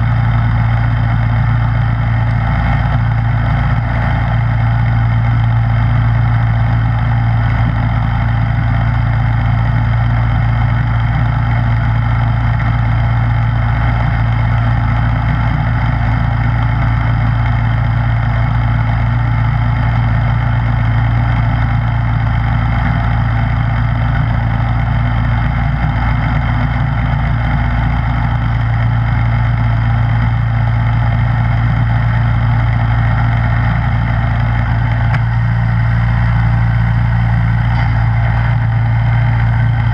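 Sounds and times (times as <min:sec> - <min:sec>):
snowblower engine running: 0:00.0 - 0:39.9.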